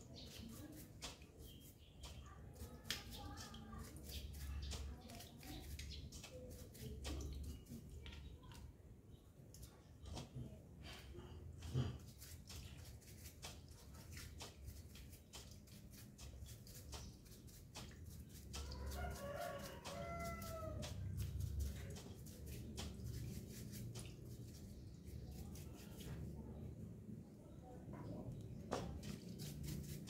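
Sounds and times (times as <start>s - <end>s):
rooster crowing: 18.7s - 20.8s.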